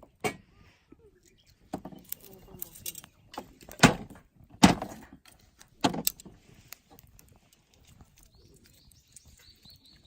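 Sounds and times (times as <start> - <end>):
light clicks of handled objects: 1.2 - 3.8, 5.2 - 10.0.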